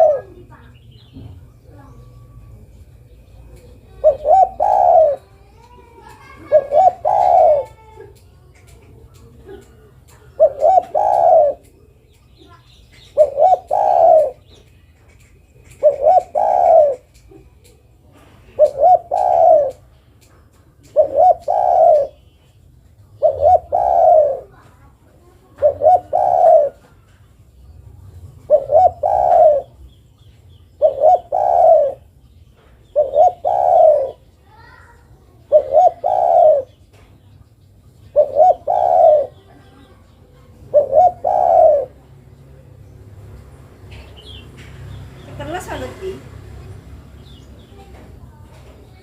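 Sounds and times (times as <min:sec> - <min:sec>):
dove cooing: 0:00.0 - 0:00.5, 0:01.8 - 0:11.9, 0:13.0 - 0:14.6, 0:15.6 - 0:19.9, 0:20.8 - 0:22.2, 0:23.1 - 0:24.7, 0:25.4 - 0:27.0, 0:28.4 - 0:29.8, 0:30.7 - 0:32.2, 0:32.9 - 0:34.8, 0:35.4 - 0:36.8, 0:38.0 - 0:42.7
small birds chirping: 0:00.0 - 0:49.0.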